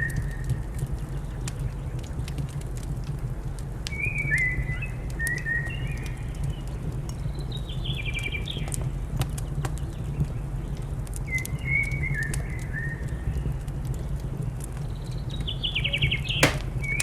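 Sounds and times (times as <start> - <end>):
wood fire crackling: 0.1 - 11.3, 16.4 - 17.0.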